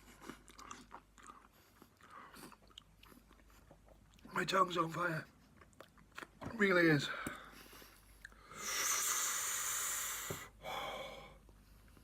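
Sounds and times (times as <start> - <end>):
man breathing hard through mouth: 7.2 - 11.4.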